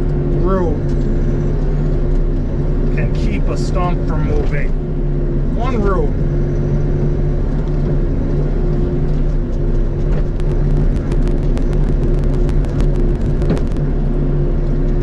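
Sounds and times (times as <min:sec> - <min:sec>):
diesel engine running: 0:10.4 - 0:13.8
sharp clicks and cracks: 0:10.4 - 0:13.8.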